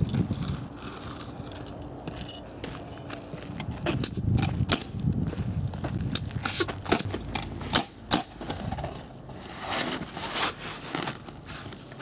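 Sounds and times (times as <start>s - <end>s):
scraping and rubbing: 8.4s - 12.0s.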